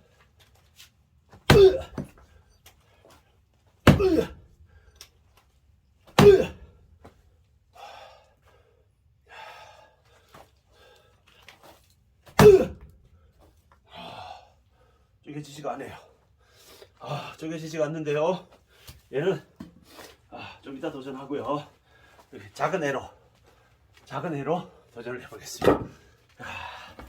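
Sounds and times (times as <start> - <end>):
axe striking log: 1.5 - 2.2, 3.8 - 4.4, 6.1 - 6.7, 12.3 - 12.9, 25.6 - 26.0.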